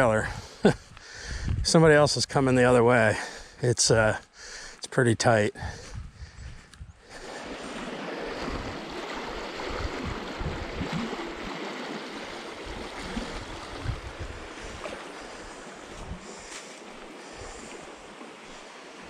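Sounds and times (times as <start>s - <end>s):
stream rushing: 7.1s - 19.0s.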